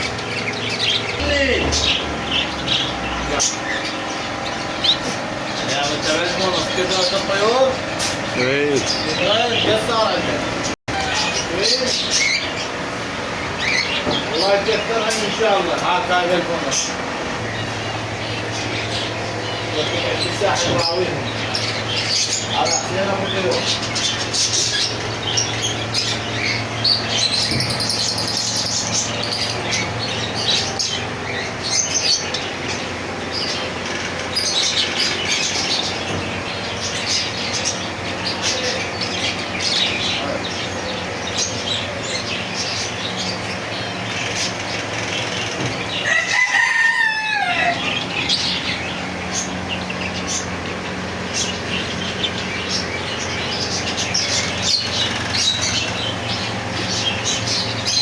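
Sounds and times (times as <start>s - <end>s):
caged birds chirping and calling: 0.0s - 58.0s
rooster crowing: 46.0s - 48.1s.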